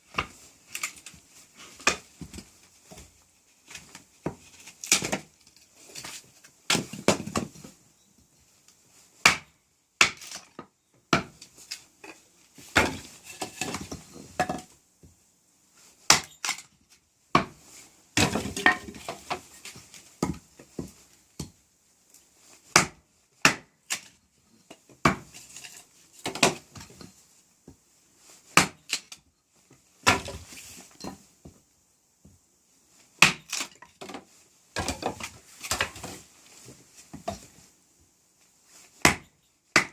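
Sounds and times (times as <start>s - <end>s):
wood splitting crackle: 0.1s - 2.4s, 3.7s - 7.5s, 9.2s - 10.6s, 16.1s - 16.7s, 28.6s - 29.3s, 33.2s - 34.2s, 34.8s - 36.4s.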